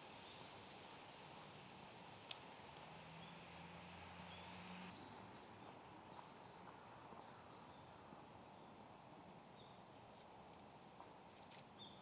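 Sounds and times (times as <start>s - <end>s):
faint tick: 2.2s - 2.9s.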